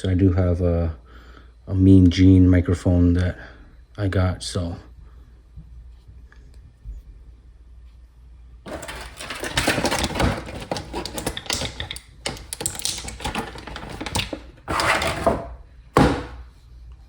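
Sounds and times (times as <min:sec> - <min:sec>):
plastic packaging crinkling: 0:08.7 - 0:15.4.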